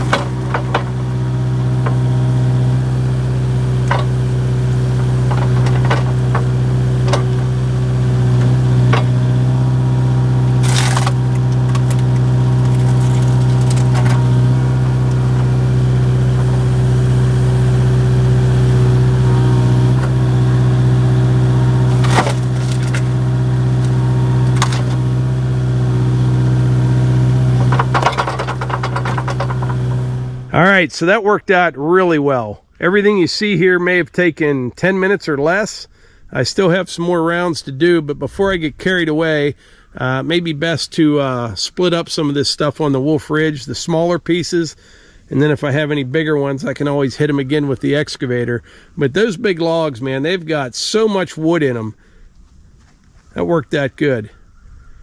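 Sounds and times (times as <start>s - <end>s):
wood cracking and splintering: 0.0s - 30.6s
excavator diesel engine running: 0.0s - 30.7s.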